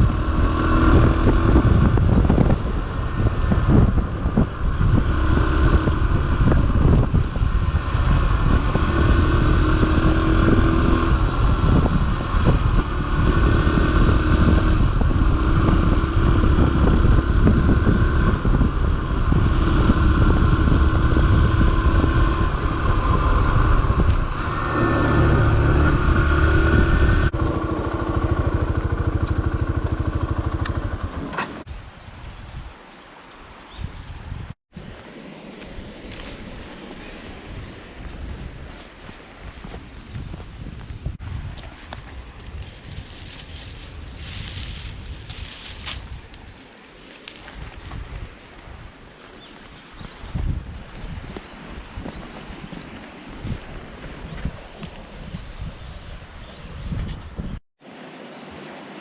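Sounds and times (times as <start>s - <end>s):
motorcycle engine running: 0.0s - 31.7s, 41.0s - 48.0s.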